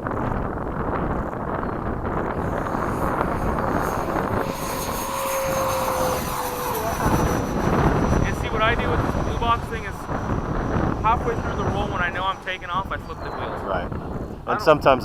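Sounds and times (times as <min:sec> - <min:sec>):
electric fan high whine: 0:00.0 - 0:15.0
wind buffeting microphone: 0:00.0 - 0:15.0.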